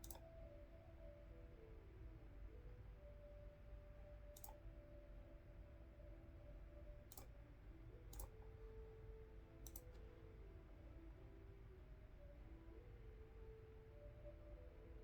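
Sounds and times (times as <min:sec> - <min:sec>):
computer mouse clicks: 0:00.0 - 0:00.2, 0:04.4 - 0:04.6, 0:07.1 - 0:07.3, 0:08.1 - 0:08.4, 0:09.6 - 0:10.0.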